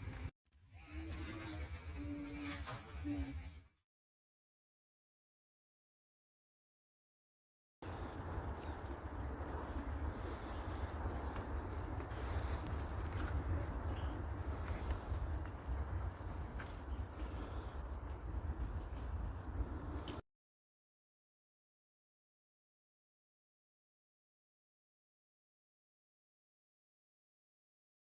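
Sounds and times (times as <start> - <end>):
insect drone: 7.8 - 20.2
low rumble: 7.8 - 20.2.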